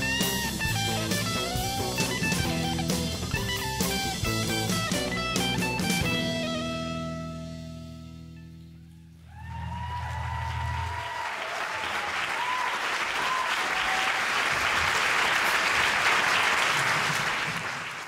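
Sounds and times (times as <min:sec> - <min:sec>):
bass and guitar chord ringing: 0:00.0 - 0:10.9
audience applauding: 0:09.3 - 0:18.0.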